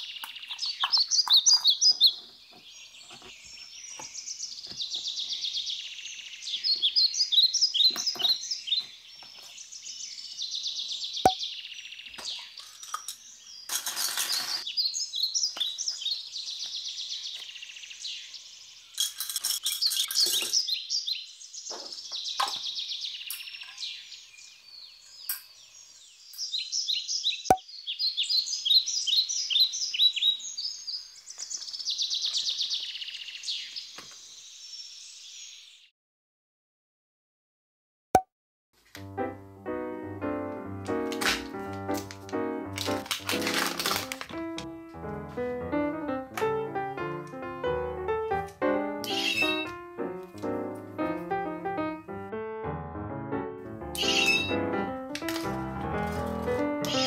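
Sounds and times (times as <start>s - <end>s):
songbird chirping and trilling: 0.0s - 35.9s, 46.5s - 52.1s, 53.9s - 55.5s, 56.2s - 57.0s
brief rustles: 13.7s - 14.6s.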